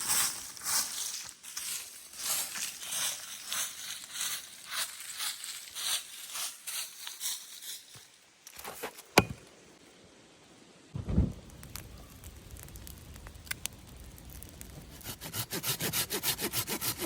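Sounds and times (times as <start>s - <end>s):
sharp crack: 11.0s - 15.1s.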